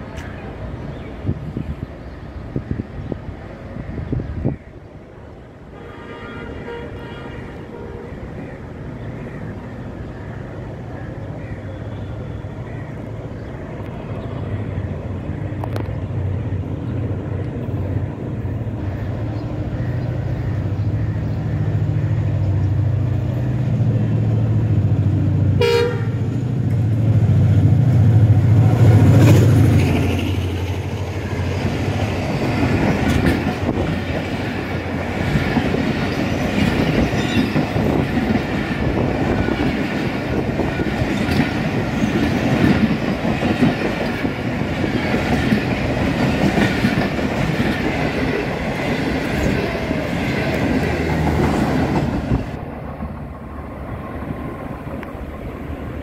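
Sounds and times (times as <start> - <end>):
diesel locomotive engine drone: 0.0 - 56.0
train horn blast: 5.8 - 8.2, 25.6 - 26.4
wheels clacking over rail joints: 28.3 - 53.3.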